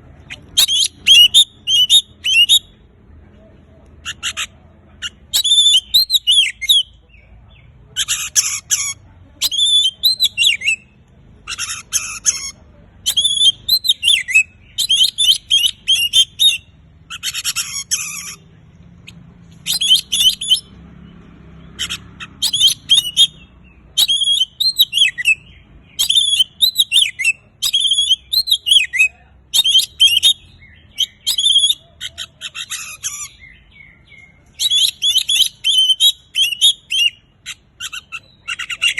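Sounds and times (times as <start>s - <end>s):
bird singing whistled phrases: 0.3s - 2.8s, 5.3s - 7.0s, 9.4s - 11.0s, 13.0s - 17.4s, 19.6s - 20.7s, 21.9s - 31.8s, 33.0s - 37.2s.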